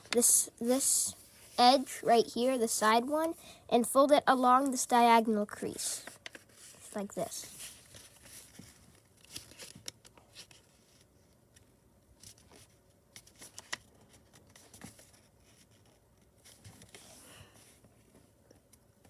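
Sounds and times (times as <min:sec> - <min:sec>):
paper being folded and creased: 0:06.0 - 0:11.1, 0:12.2 - 0:17.2.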